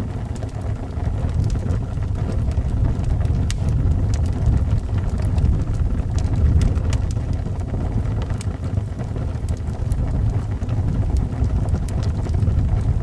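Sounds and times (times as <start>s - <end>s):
wind blowing: 0.0s - 7.9s
fire crackling and popping: 0.0s - 13.0s.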